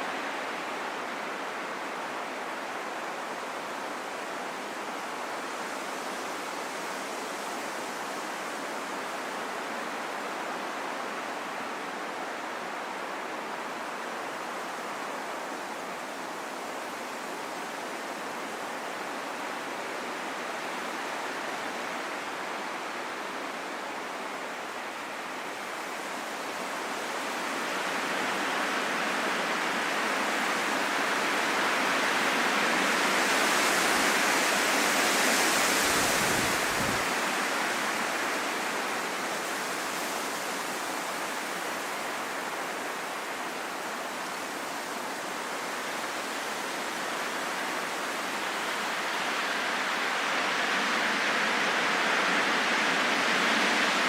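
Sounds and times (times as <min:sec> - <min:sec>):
wind blowing: 0:33.8 - 0:54.0.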